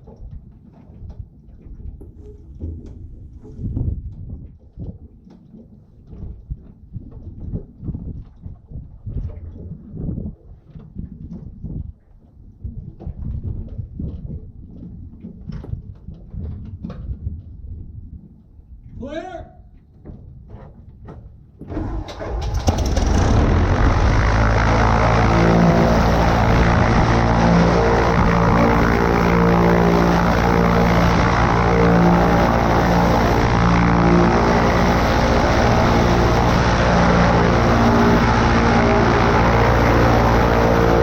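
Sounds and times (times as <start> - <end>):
propeller plane engine running: 21.7 - 41.0.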